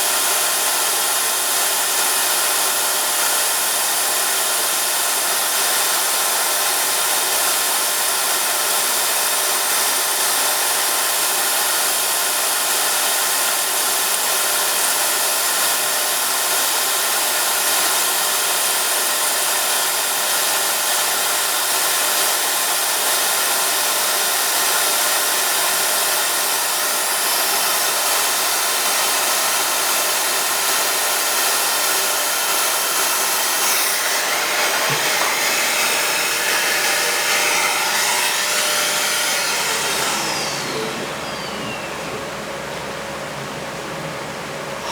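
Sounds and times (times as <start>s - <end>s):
lathe whirring: 26.2s - 44.9s.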